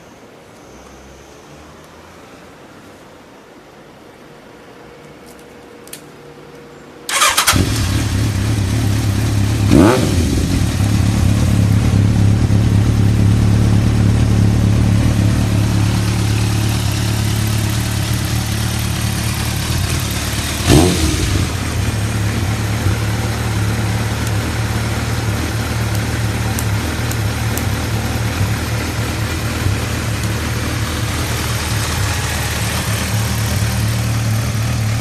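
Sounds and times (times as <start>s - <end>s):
electric starter cranking: 7.1s - 7.9s
motorcycle engine idling: 7.1s - 35.0s.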